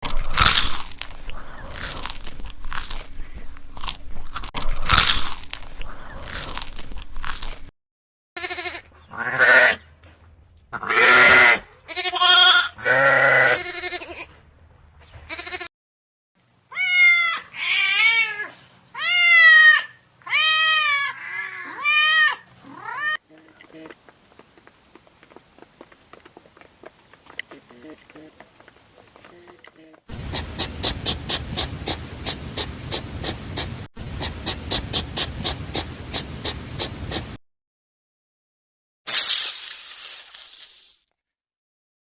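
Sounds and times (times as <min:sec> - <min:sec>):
crunching and crackling: 0:00.0 - 0:07.7
goats or sheep bleating: 0:08.4 - 0:09.8, 0:10.8 - 0:14.4, 0:15.3 - 0:15.7
cat meowing: 0:20.3 - 0:23.2.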